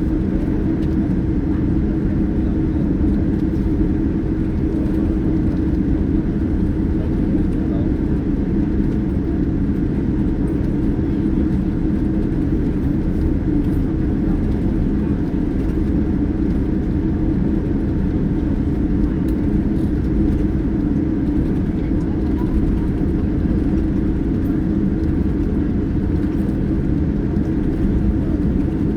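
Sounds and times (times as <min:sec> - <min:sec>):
airplane cabin engine rumble: 0:00.0 - 0:28.9.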